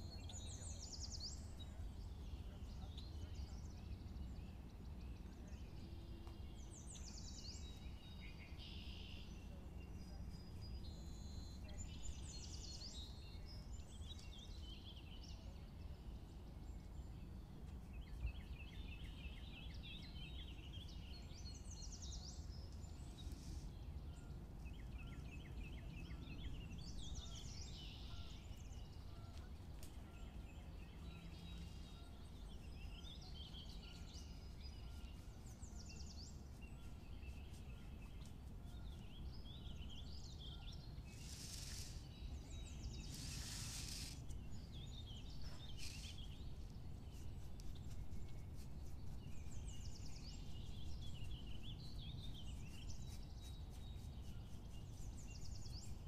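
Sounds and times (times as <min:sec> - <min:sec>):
songbirds chirping and singing: 0:00.0 - 0:56.0.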